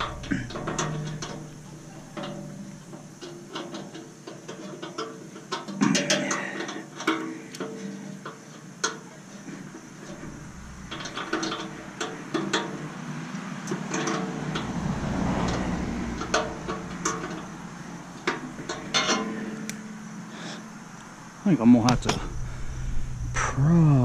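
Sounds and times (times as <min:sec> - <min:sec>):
metal tools clinking: 0:00.0 - 0:13.0, 0:13.7 - 0:19.8.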